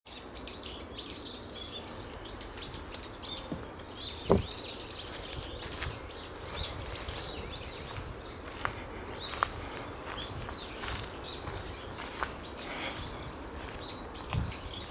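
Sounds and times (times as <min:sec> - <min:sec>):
small birds chirping: 0:00.1 - 0:14.9
loud thump: 0:04.3 - 0:04.6.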